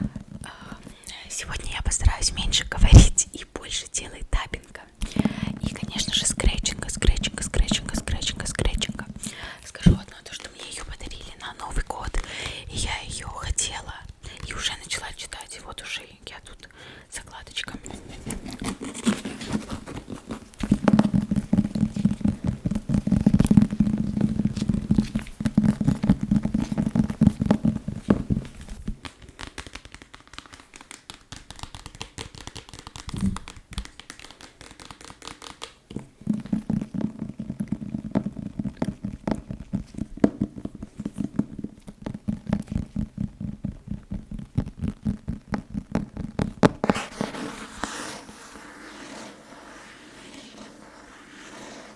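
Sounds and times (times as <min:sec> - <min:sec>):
fast tapping on a book: 0:05.0 - 0:13.0, 0:18.2 - 0:49.3.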